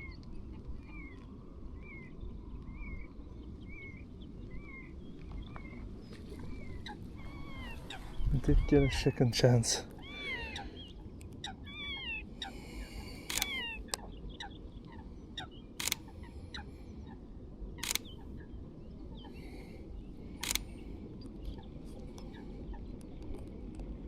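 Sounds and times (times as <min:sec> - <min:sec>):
birds chirping: 0:00.0 - 0:23.4
camera shutter clicks: 0:13.2 - 0:14.0, 0:15.8 - 0:16.1, 0:17.8 - 0:18.2, 0:20.4 - 0:20.7.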